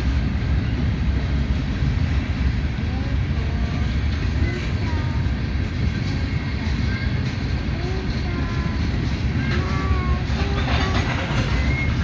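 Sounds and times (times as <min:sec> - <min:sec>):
freight train rumbling: 0:00.0 - 0:12.0
train wheels squealing: 0:06.0 - 0:07.7, 0:08.5 - 0:12.0.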